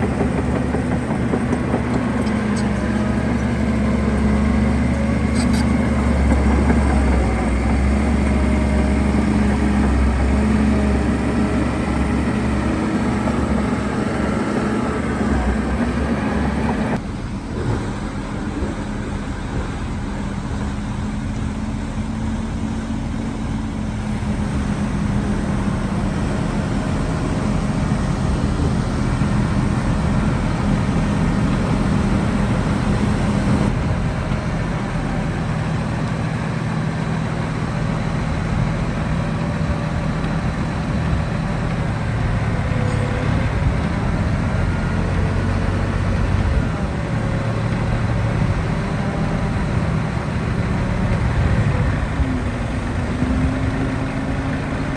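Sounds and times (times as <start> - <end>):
heavy diesel engine under load: 0.0 - 54.9.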